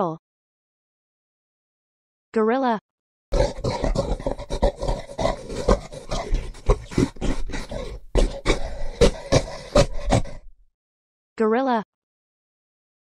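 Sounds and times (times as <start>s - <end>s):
gorilla rough sharp sounds: 3.3s - 10.6s.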